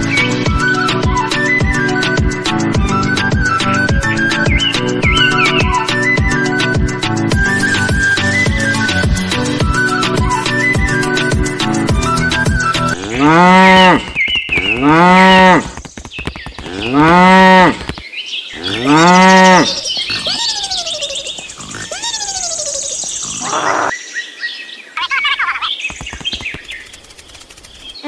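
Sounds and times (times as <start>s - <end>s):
cow mooing: 13.0s - 14.1s, 14.8s - 15.6s, 16.7s - 17.8s, 18.6s - 20.4s
other animal sounds: 16.4s - 24.0s.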